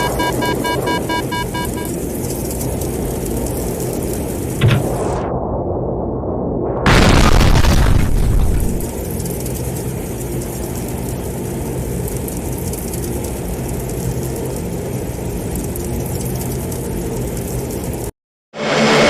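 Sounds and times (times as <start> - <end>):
airplane engines droning: 0.0 - 5.3.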